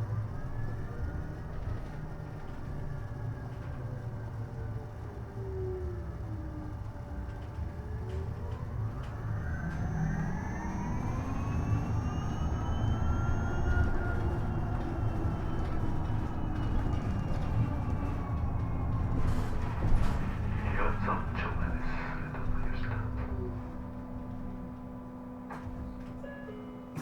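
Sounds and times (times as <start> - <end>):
electric bus motor whining: 0.0 - 27.0
road rumble: 11.6 - 25.8.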